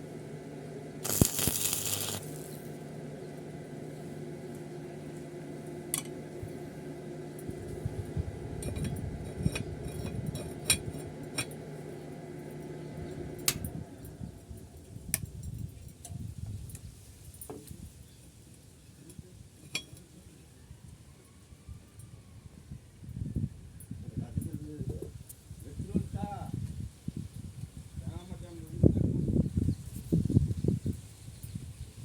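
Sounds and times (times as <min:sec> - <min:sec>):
electrical hum: 0:00.0 - 0:15.9
short loud hiss: 0:01.0 - 0:02.7.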